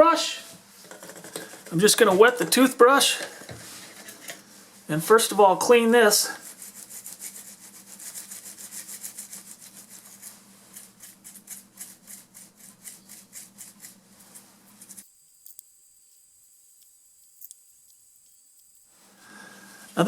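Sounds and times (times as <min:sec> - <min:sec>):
toothbrush scrubbing circuit board: 0:06.4 - 0:18.9.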